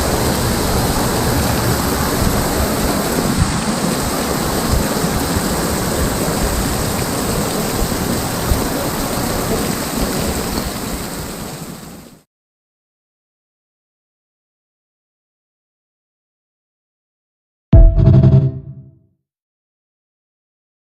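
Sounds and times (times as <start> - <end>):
heavy rain pouring: 0.0 - 12.2.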